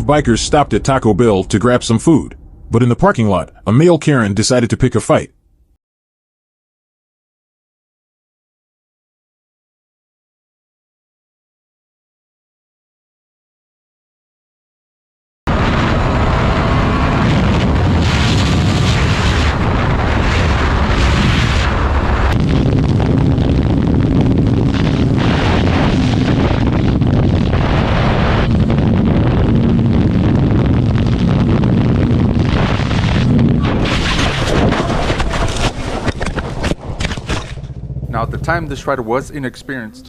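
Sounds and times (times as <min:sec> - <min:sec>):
wind buffeting microphone: 0:15.5 - 0:39.7
motorcycle engine running: 0:37.4 - 0:39.3.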